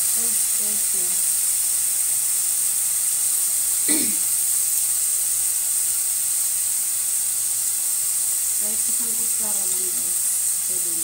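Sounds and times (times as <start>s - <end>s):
beans sizzling in a wok: 0.0s - 11.0s.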